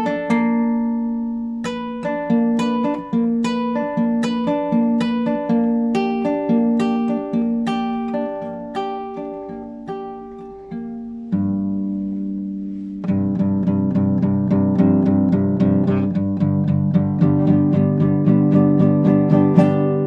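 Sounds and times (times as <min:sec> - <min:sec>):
classical guitar playing: 0:00.0 - 0:20.0.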